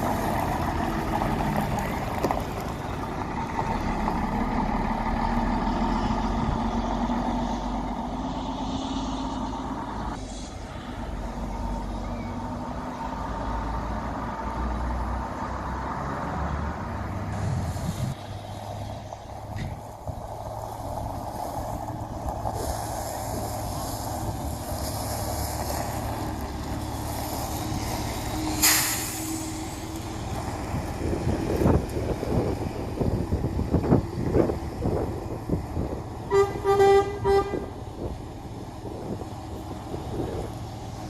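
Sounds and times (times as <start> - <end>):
diesel engine running: 0.0 - 41.0
air brake hiss: 28.5 - 29.8.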